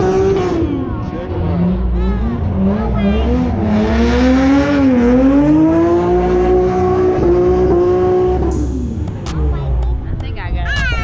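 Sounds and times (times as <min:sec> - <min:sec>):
car engine revving high: 0:00.0 - 0:10.3.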